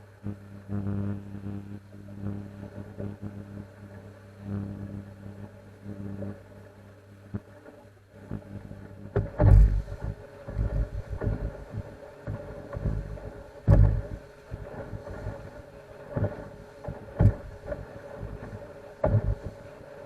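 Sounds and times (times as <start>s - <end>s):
boat engine humming: 1.8s - 20.0s
hull thumping on swell: 9.2s - 15.6s, 16.2s - 19.6s
wind buffeting microphone: 9.2s - 15.6s.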